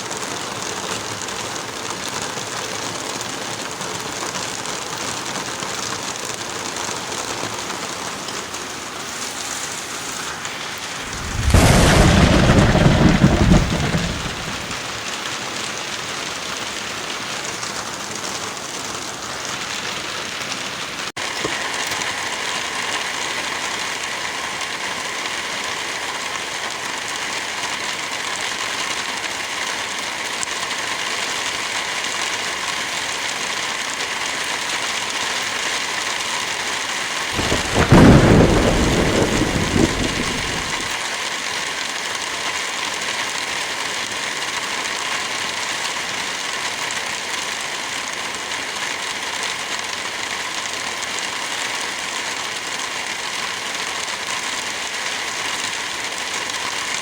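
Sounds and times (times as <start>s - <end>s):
heavy rain: 0.0s - 57.0s
thunderclap: 11.0s - 15.0s, 37.4s - 41.0s.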